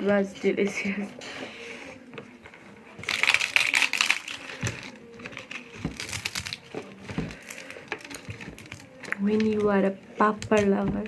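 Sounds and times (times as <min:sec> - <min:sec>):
crunching and chewing crisp food: 0:03.0 - 0:09.2.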